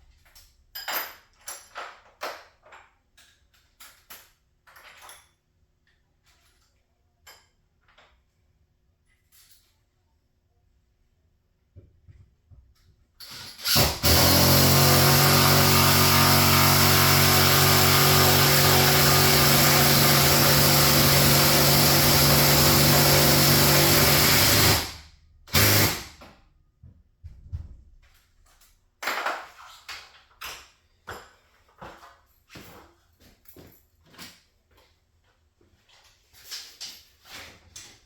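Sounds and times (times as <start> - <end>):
garage door opener motor running: 13.5 - 26.1.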